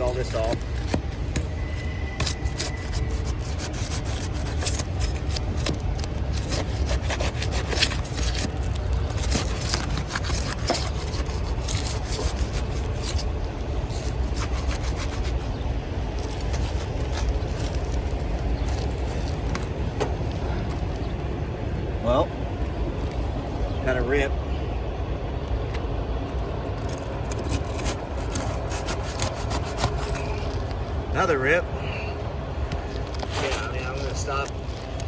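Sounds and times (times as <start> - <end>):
roof shingles scraping and crackling: 0.0 - 21.1, 26.8 - 31.1, 32.6 - 35.0
steady low rumble: 0.0 - 35.0.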